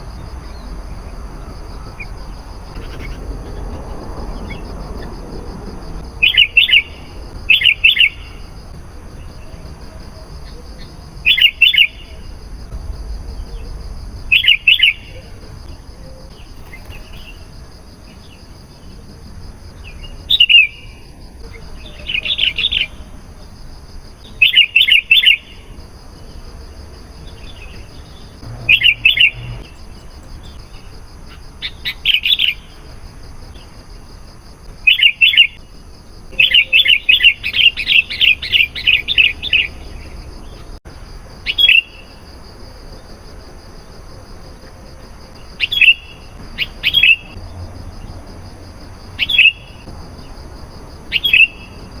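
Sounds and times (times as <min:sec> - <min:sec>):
bird singing whistled notes: 0:06.2 - 0:08.4, 0:10.4 - 0:12.2, 0:14.3 - 0:17.4, 0:20.0 - 0:21.0, 0:24.3 - 0:25.6, 0:27.4 - 0:30.9, 0:36.3 - 0:40.2.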